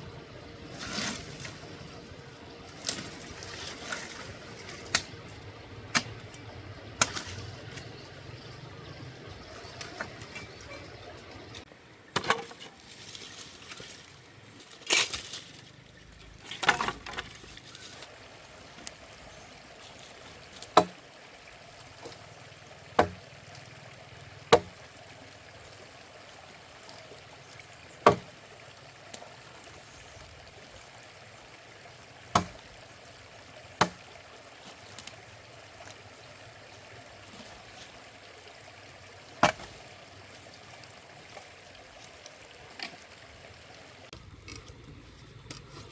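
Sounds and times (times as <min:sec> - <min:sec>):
rough scraping noises: 0:00.0 - 0:06.4, 0:44.1 - 0:45.9.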